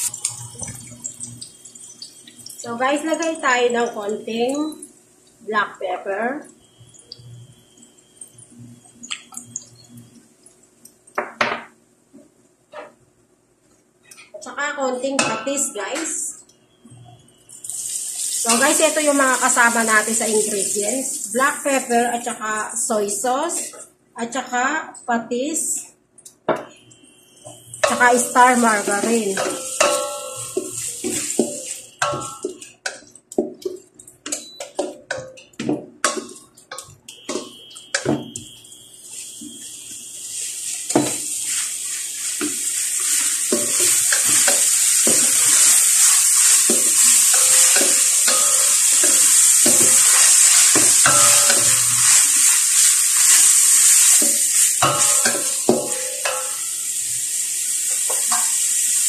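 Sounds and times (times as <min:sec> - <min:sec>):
hot oil sizzling: 0:00.0 - 0:11.5, 0:15.0 - 0:23.6, 0:26.7 - 0:35.3, 0:36.0 - 0:59.0
wooden spatula clacking in pan: 0:29.4 - 0:37.5.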